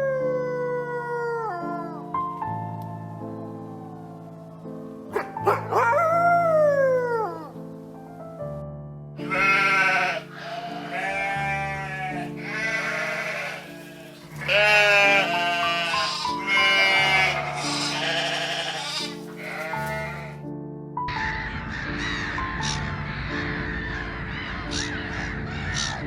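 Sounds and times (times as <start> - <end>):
background music: 0.0 - 26.0
animal bleating: 9.2 - 20.4.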